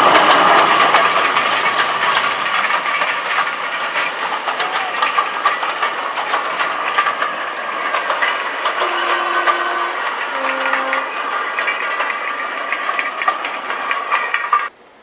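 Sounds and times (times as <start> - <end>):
train rattling along track: 0.0 - 14.8
locomotive horn: 2.8 - 14.7.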